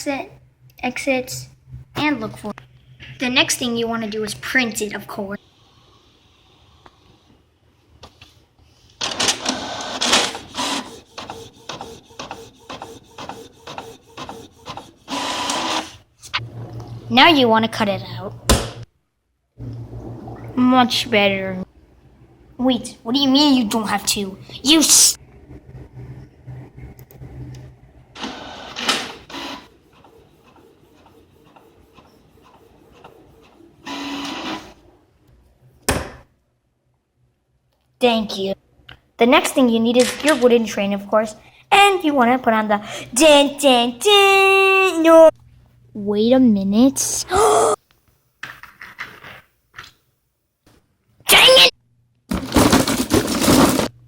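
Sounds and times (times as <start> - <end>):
printer printing: 9.0 - 16.0, 28.2 - 34.8.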